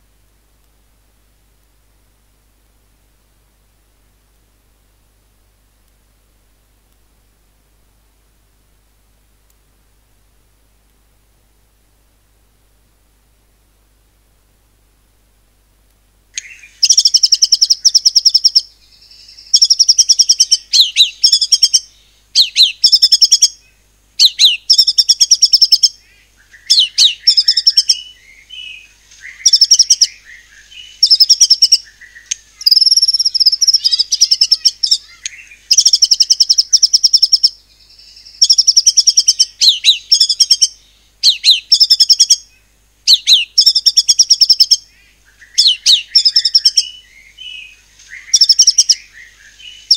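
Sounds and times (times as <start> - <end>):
bird singing rapid notes: 16.4 - 23.6, 24.2 - 42.5, 43.1 - 49.9.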